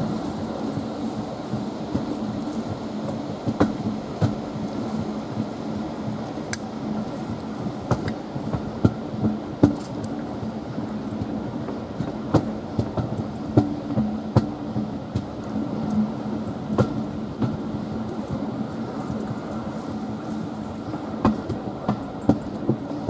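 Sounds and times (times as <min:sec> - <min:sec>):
train running hum: 0:00.0 - 0:23.0.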